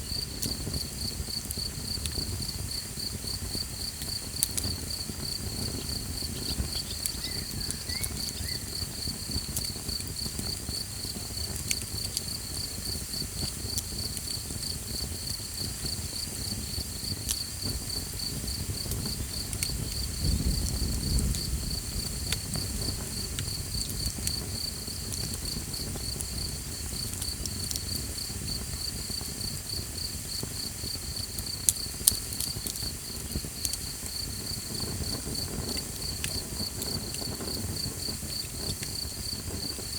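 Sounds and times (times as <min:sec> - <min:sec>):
campfire crackling and popping: 0:00.0 - 0:39.9
crickets chirping: 0:00.0 - 0:39.9.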